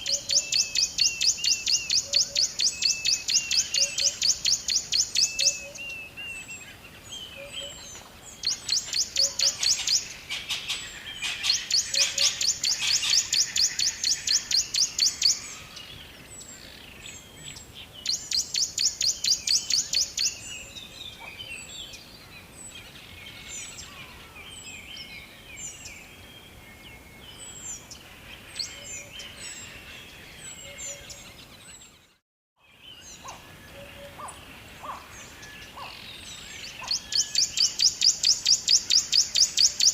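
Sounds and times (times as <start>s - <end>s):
songbirds singing rapid high notes: 0.0s - 22.2s, 32.7s - 39.9s
bird chirps: 0.0s - 39.9s.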